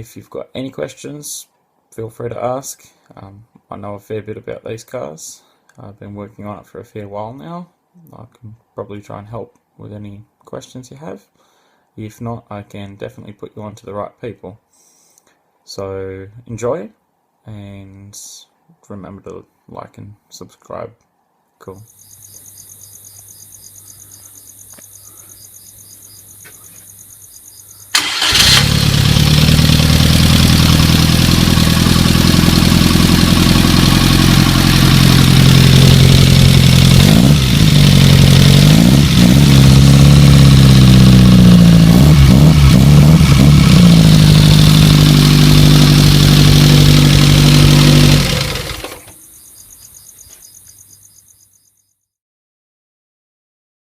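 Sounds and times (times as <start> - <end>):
crickets chirping: 21.8 - 28.6, 49.2 - 52.1
engine starting: 27.9 - 29.5, 48.2 - 49.3
car engine idling and revving: 27.9 - 49.1.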